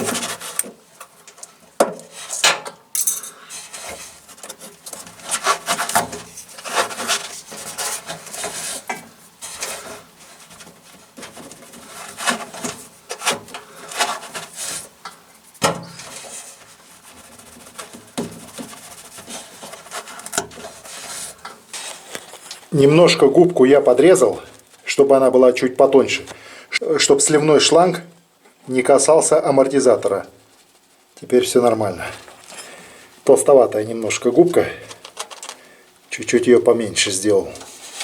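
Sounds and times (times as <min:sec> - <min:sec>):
sponge rubbing and scraping: 0:15.9 - 0:23.0.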